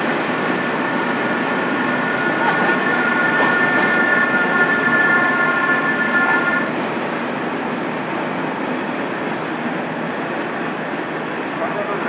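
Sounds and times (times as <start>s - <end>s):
rumbling hiss of trains: 0.0s - 12.0s.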